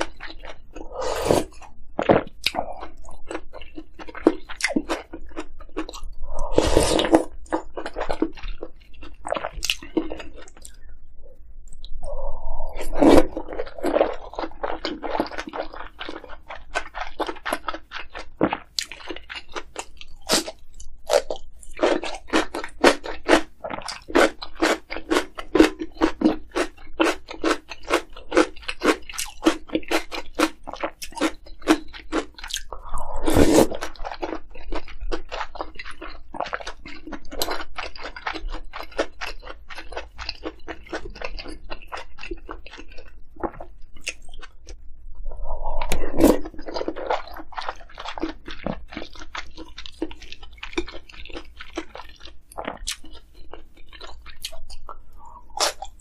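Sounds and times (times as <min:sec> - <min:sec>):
mouth sound: 0:06.2 - 0:07.3, 0:32.8 - 0:33.7, 0:45.2 - 0:46.6
crunchy chewing: 0:12.6 - 0:44.8, 0:45.4 - 0:56.0.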